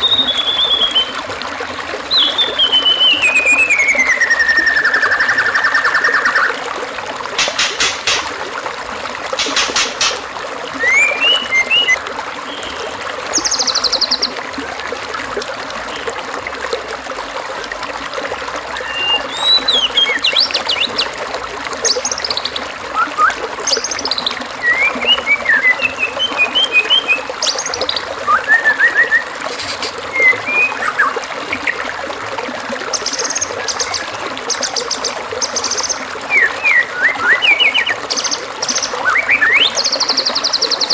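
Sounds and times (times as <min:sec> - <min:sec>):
songbird calls and trills: 0:00.0 - 0:01.2, 0:02.1 - 0:06.6, 0:10.8 - 0:14.4, 0:18.7 - 0:21.1, 0:21.8 - 0:31.9, 0:32.9 - 0:40.9
running water trickling: 0:00.0 - 0:40.9.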